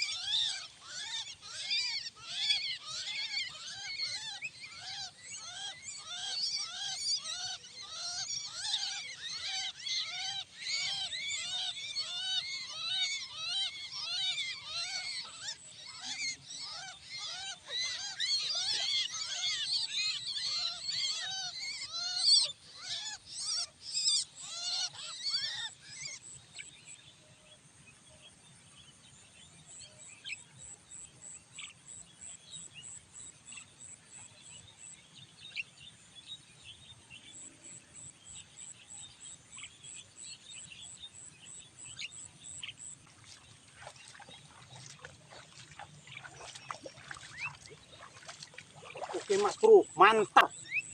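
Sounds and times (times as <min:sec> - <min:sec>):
starlings calling harshly: 0:00.0 - 0:26.2, 0:43.8 - 0:50.9.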